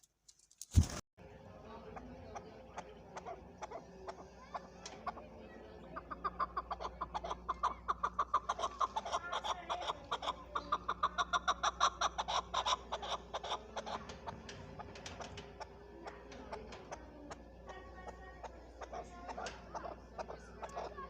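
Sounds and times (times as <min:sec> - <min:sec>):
partridge calling chuck notes: 0:01.5 - 0:21.0.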